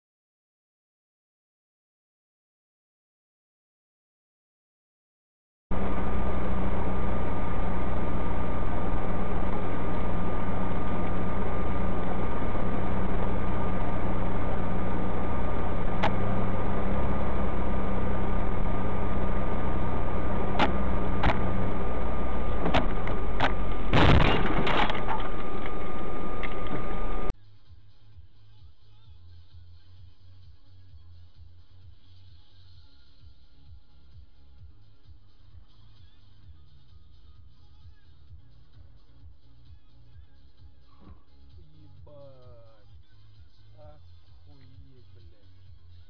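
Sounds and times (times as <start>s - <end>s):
thin high whine: 5.7s - 27.3s
vehicle engine and road noise: 5.7s - 46.0s
dense clatter of impacts: 22.4s - 26.8s.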